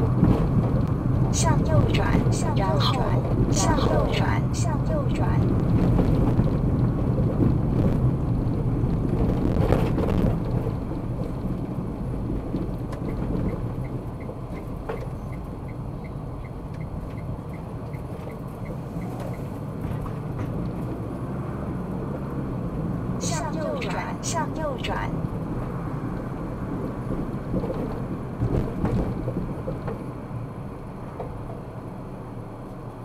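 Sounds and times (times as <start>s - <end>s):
car tyre and engine rumble: 0.0s - 33.0s
turn signal ticking: 11.3s - 19.6s.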